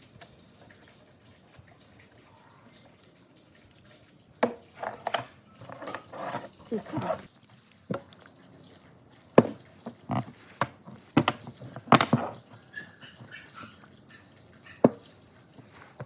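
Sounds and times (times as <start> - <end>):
sharp knocks and taps: 9.4 - 12.4, 14.8 - 15.1.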